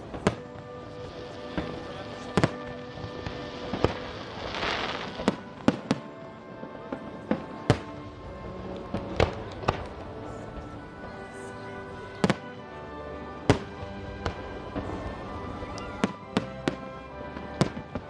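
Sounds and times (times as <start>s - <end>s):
hissing crackle: 0.0s - 12.8s
music with held tones: 0.0s - 18.0s.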